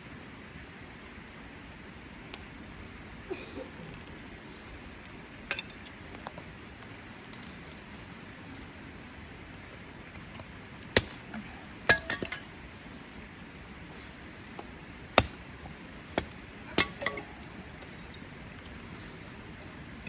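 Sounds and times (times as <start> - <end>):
cookware clinking: 16.7 - 17.4.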